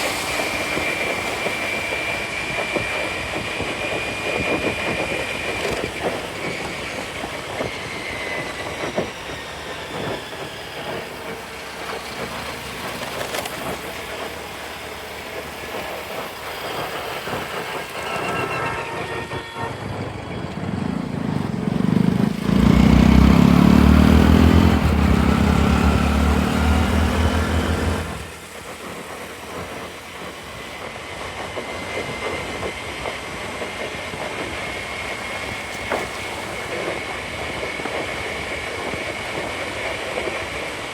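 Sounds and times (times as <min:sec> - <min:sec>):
road and wind noise: 0:00.0 - 0:15.1, 0:19.2 - 0:40.9.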